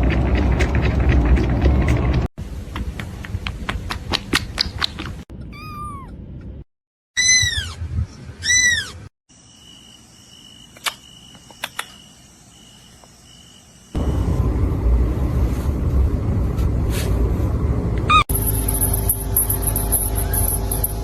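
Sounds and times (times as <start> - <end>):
kitten meowing: 5.4 - 6.2
loud low rumbling: 14.0 - 21.0.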